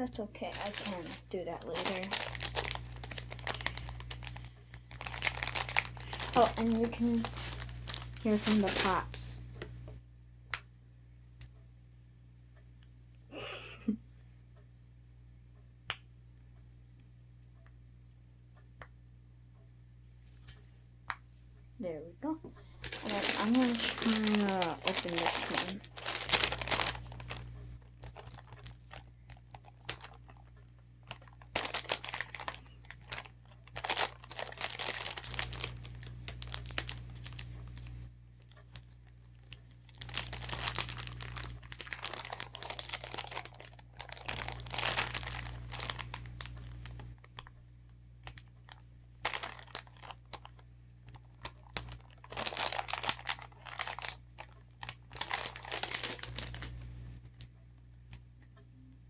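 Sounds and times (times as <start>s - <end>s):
packaging crinkling and tearing: 0.4s - 9.4s, 22.6s - 47.5s, 48.2s - 57.4s.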